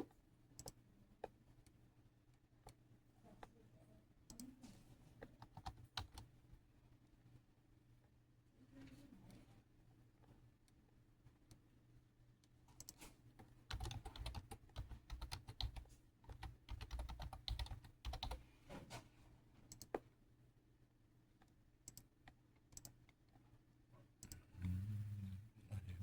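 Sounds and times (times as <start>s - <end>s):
faint low hum: 21.4s - 26.0s.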